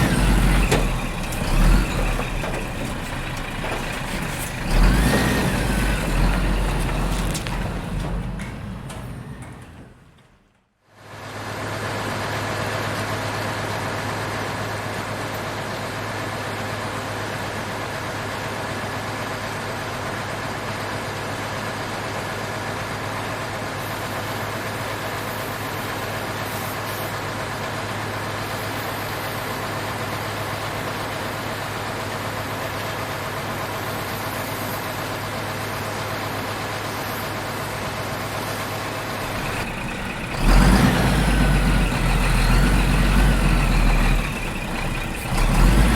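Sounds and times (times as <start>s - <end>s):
truck engine humming: 0.0s - 10.5s, 32.0s - 45.9s.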